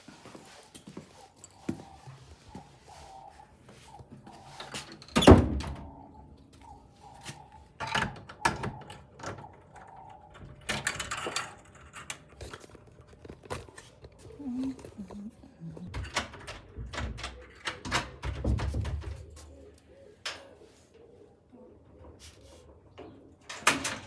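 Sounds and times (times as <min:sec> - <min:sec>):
light knocks and rattles: 0:14.8 - 0:19.6.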